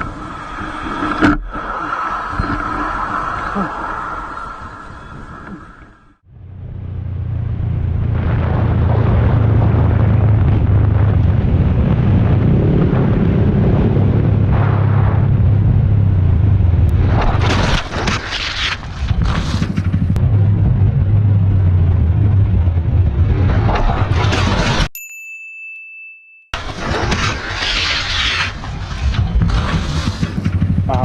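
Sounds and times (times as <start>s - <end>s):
vehicle engine rumbling: 6.2s - 24.9s, 28.6s - 31.0s.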